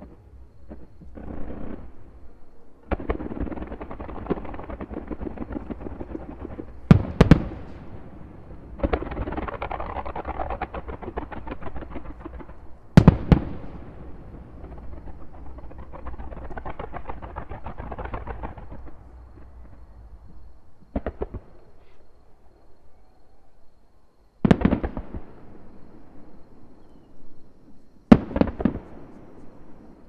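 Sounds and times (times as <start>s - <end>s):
crackling of bursting fireworks: 0.0s - 22.2s, 24.4s - 30.0s
loud firework shell bursts: 2.9s - 18.8s.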